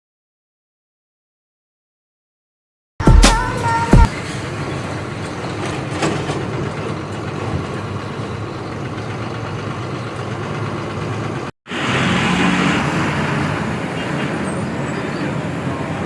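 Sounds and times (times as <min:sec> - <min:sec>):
road and traffic noise: 0:03.4 - 0:16.0.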